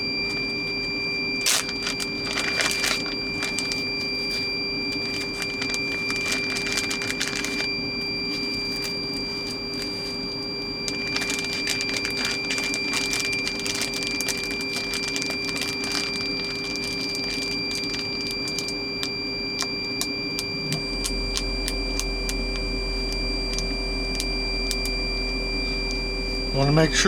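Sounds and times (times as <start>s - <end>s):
steady electrical hum: 0.0s - 27.0s
plastic bags crinkling: 1.4s - 4.0s, 4.9s - 7.7s, 10.9s - 25.0s.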